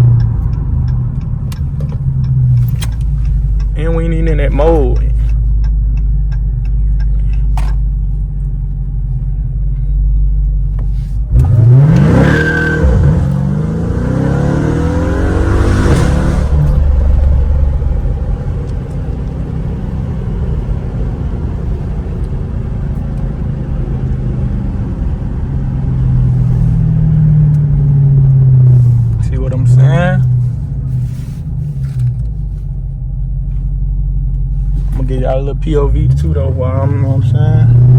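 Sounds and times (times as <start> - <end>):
car engine revving: 10.7 - 37.9.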